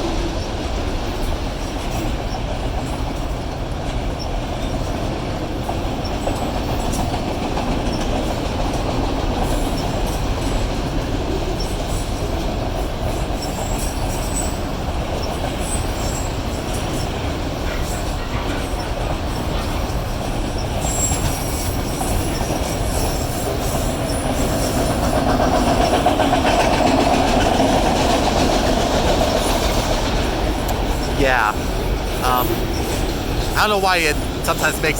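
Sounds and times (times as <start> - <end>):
freight car wheels rumbling on rail: 0.0 - 34.7
high-pitched wheel squeal: 17.7 - 24.8.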